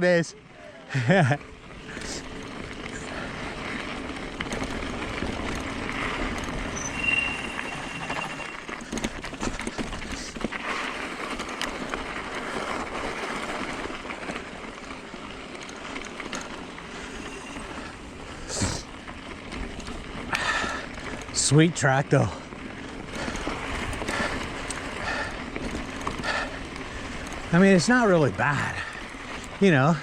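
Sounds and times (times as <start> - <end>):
bike rattling: 0.0 - 30.0
tyres rolling on gravel: 0.0 - 30.0
brief high squeak: 6.7 - 8.7.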